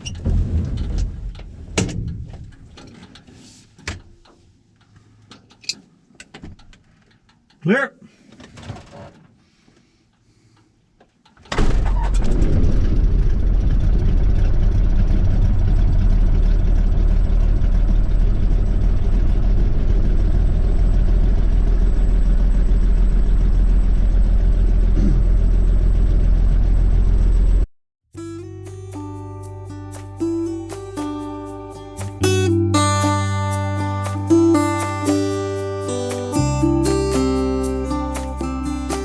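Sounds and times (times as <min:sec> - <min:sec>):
airplane engine starting and running: 0:11.8 - 0:27.7.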